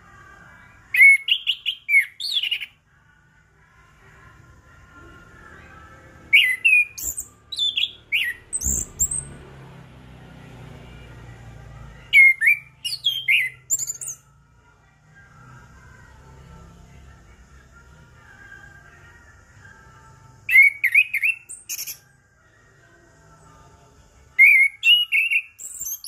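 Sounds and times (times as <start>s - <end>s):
thrush singing whistled notes: 0.9s - 2.8s, 6.2s - 9.4s, 12.0s - 14.3s, 20.4s - 22.2s, 24.3s - 26.0s.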